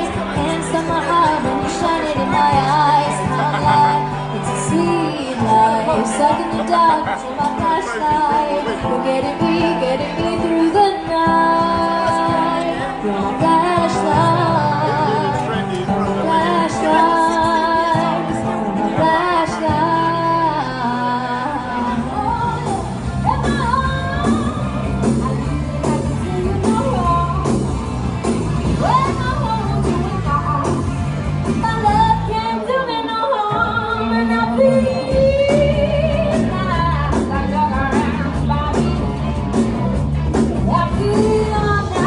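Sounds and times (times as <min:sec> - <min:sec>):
person singing: 0:00.0 - 0:27.6
live rock and roll band: 0:00.0 - 0:42.0.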